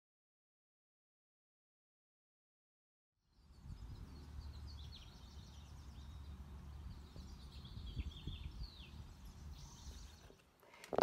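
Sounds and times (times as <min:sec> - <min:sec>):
small birds chirping: 0:03.2 - 0:11.0
low outdoor rumble: 0:03.3 - 0:10.3.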